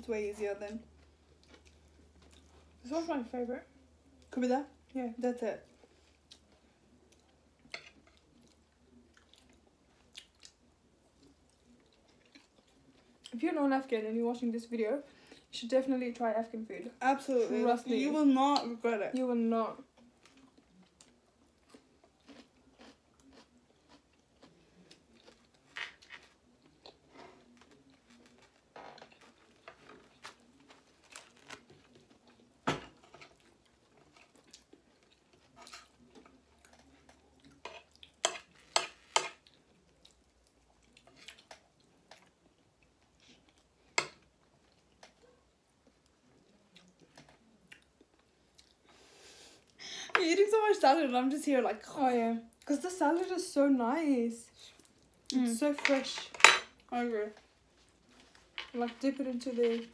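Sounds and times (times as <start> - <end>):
people chewing and crunching food: 0.6 - 3.1, 5.6 - 13.4, 18.4 - 50.1, 54.5 - 56.1, 56.7 - 59.9.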